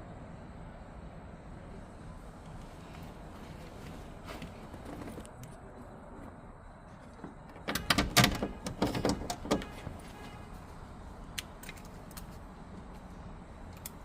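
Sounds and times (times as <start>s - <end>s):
door clattering and rattling: 7.1s - 10.0s
van door shutting: 7.1s - 10.3s.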